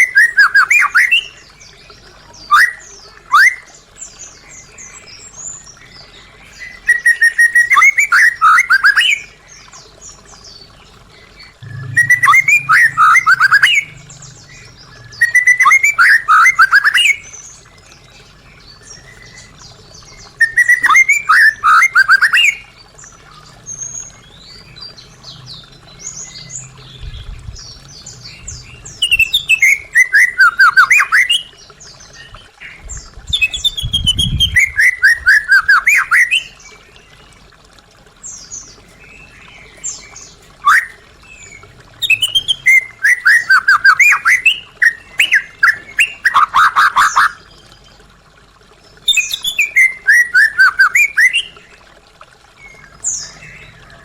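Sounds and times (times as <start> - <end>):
bird singing whistled notes: 11.6 - 17.4, 20.4 - 22.6, 42.0 - 46.4.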